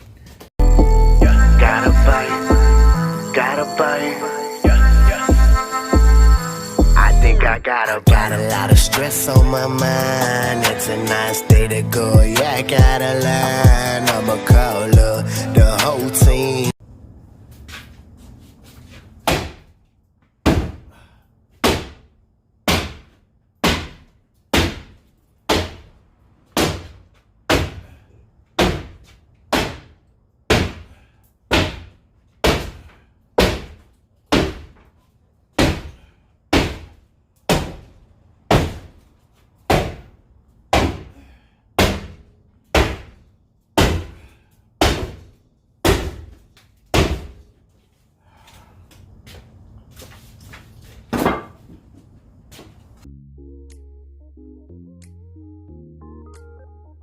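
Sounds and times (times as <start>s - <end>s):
hammer striking wood: 20.4s - 20.9s, 21.6s - 22.1s, 22.7s - 25.9s, 26.6s - 27.8s, 28.6s - 30.9s, 31.5s - 32.8s, 33.4s - 34.8s, 35.6s - 37.9s, 39.7s - 40.1s, 40.7s - 41.1s, 41.8s - 43.2s, 43.8s - 44.2s, 44.8s - 47.4s, 51.1s - 51.6s.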